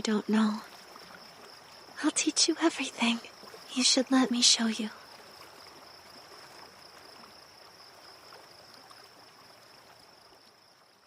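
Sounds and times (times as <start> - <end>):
low hiss: 0.0 - 11.0.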